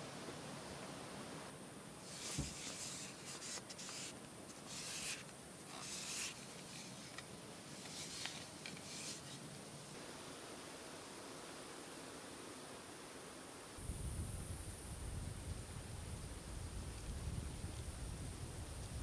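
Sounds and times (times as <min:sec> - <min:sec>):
steady hiss: 0:00.0 - 0:19.0
rustling and rubbing: 0:02.0 - 0:10.0
soft thump: 0:02.3 - 0:02.6.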